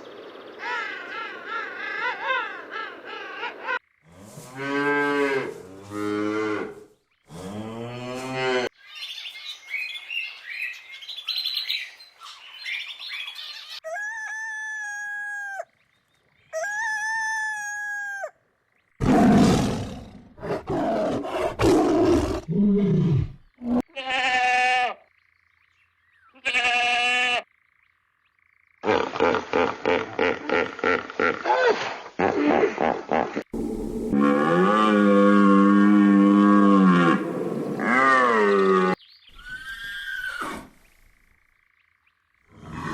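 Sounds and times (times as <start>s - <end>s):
bird chirping: 8.8s - 13.9s, 25.1s - 26.4s, 39.0s - 40.2s
animal roaring: 19.0s - 23.8s, 33.5s - 39.0s, 42.5s - 42.9s.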